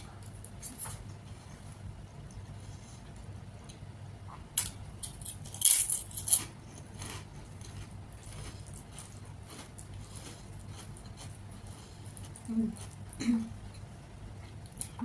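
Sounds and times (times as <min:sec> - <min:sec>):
crunching crisp snack: 0:04.6 - 0:13.1.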